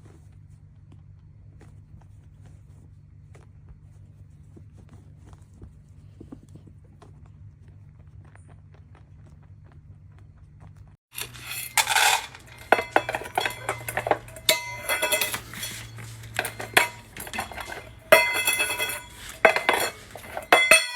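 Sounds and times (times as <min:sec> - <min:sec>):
hard objects clinking and clattering: 0:11.1 - 0:20.9.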